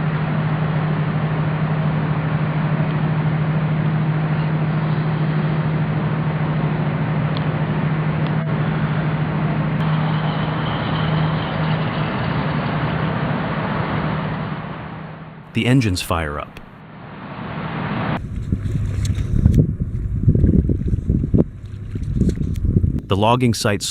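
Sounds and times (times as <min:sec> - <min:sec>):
heavy machinery engine humming: 0:18.2 - 0:23.9.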